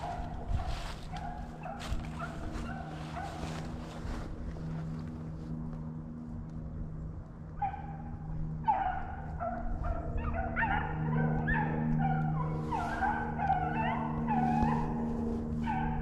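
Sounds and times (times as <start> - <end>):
hounds baying: 0.0 - 4.0, 7.5 - 16.0
steady low hum: 0.0 - 16.0.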